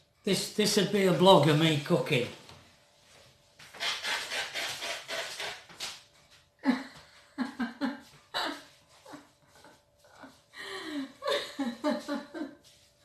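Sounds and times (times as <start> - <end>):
person laughing: 6.6 - 12.7.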